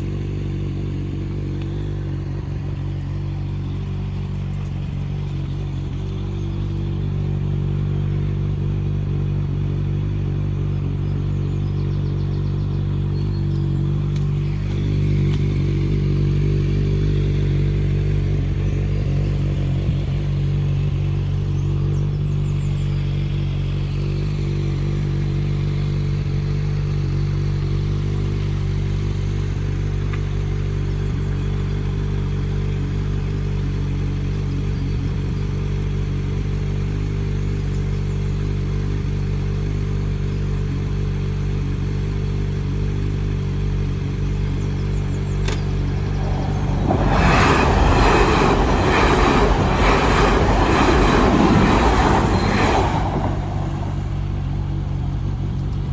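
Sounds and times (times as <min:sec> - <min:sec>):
diesel engine humming: 0:00.0 - 0:55.9
diesel train passing: 0:44.9 - 0:55.9.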